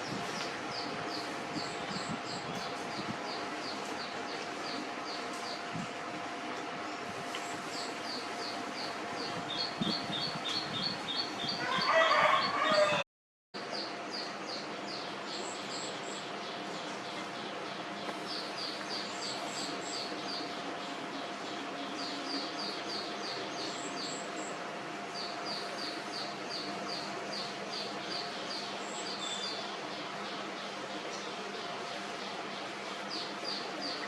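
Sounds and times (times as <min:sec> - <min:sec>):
steady background hiss: 0:13.6 - 0:34.0.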